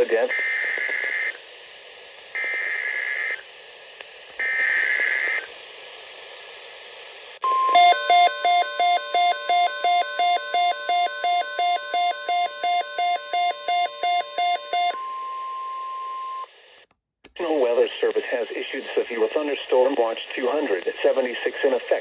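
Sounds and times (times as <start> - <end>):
radio hiss: 0.0 - 7.4, 17.4 - 22.0
electronic beeping: 7.4 - 15.0
steady alarm tone: 7.4 - 15.0.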